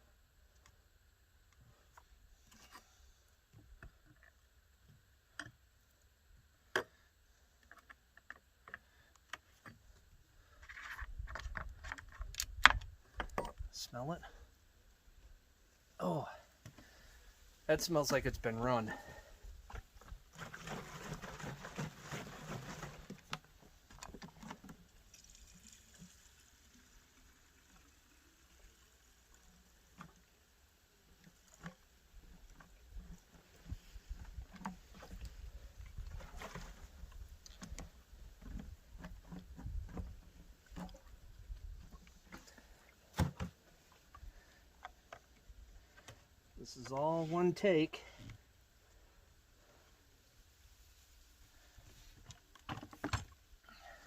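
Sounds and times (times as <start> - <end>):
small clicks and knocks: 7.6 - 9.9, 10.5 - 13.7.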